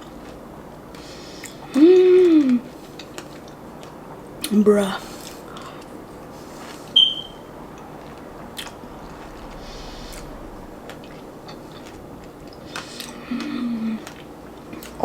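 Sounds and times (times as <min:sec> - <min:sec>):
chewing and crunching: 0:00.0 - 0:04.5, 0:07.7 - 0:15.0
short high-pitched squeak: 0:07.0 - 0:07.4.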